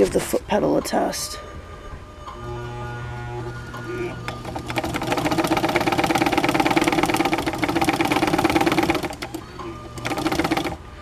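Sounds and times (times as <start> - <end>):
sewing machine clatter: 4.4 - 10.8.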